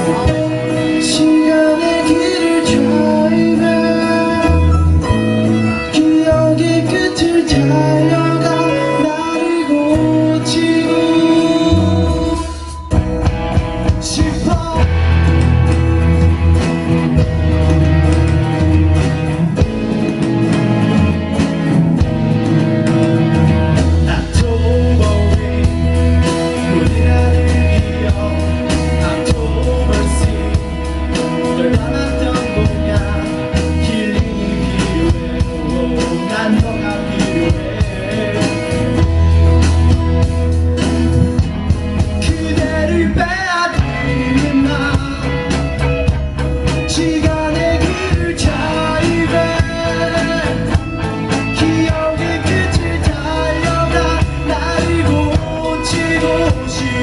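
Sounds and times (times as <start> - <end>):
person singing: 0.0 - 17.7, 22.8 - 57.0
live rock band playing: 0.0 - 57.0.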